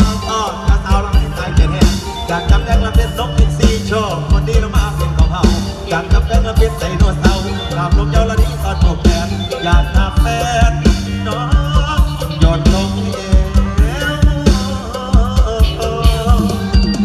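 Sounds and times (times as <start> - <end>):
bass: 0.0 - 17.0
drum-kit beat: 0.0 - 17.0
wavering melody line: 0.0 - 17.0.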